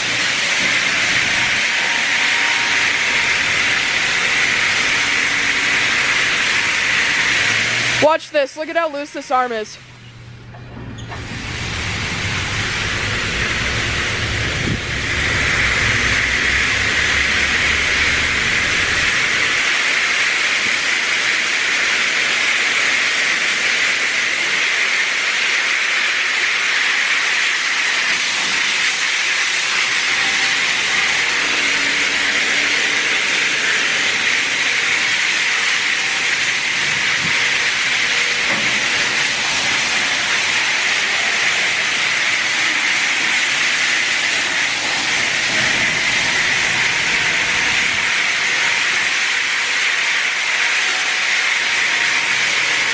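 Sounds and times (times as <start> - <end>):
high-pressure water spray hiss: 0.0 - 10.0, 11.1 - 52.9
low rumble: 11.3 - 19.2.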